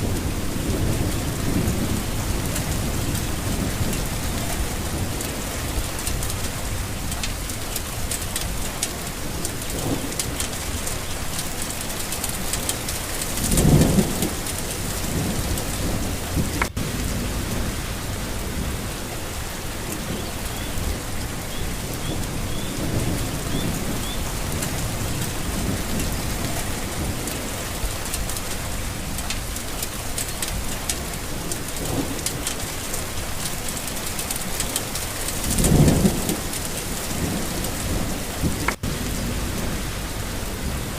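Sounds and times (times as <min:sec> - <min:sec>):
thunder rolling: 0:00.0 - 0:10.8, 0:12.4 - 0:28.0, 0:35.4 - 0:40.9
rain falling: 0:00.0 - 0:40.9.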